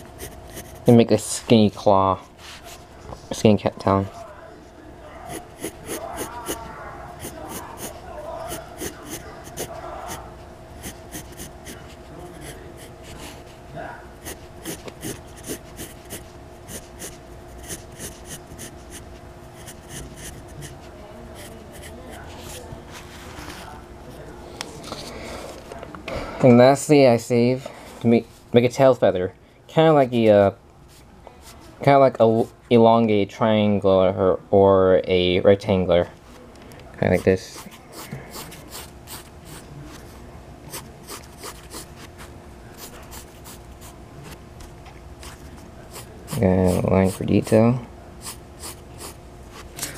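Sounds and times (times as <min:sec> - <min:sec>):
pencil sketching strokes scratching: 0:00.0 - 0:01.0, 0:05.3 - 0:06.6, 0:07.2 - 0:10.2, 0:10.8 - 0:13.6, 0:14.2 - 0:19.0, 0:19.6 - 0:22.6, 0:40.7 - 0:41.9
faint steady hum: 0:00.0 - 0:49.9.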